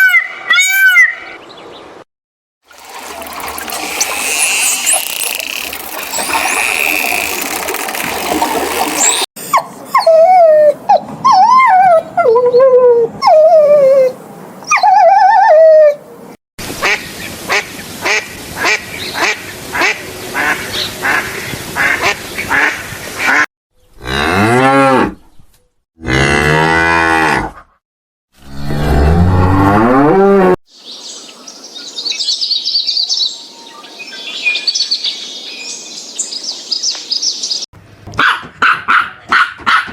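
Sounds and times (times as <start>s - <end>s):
high chirps: 3.0s - 9.3s
wavering high animal calls: 3.4s - 10.5s.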